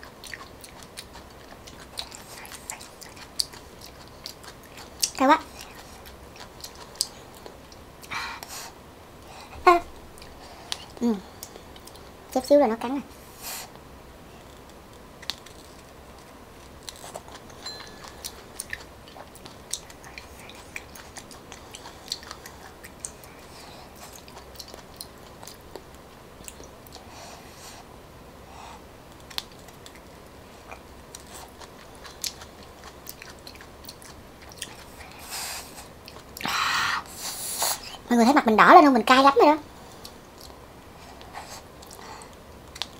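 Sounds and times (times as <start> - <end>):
person chewing and biting: 0.0 - 8.1, 14.4 - 27.0, 30.7 - 36.5.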